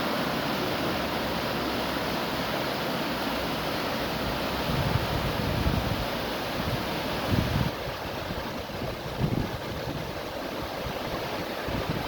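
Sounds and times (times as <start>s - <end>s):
river water rushing: 0.0s - 12.0s
wind buffeting microphone: 4.6s - 12.0s.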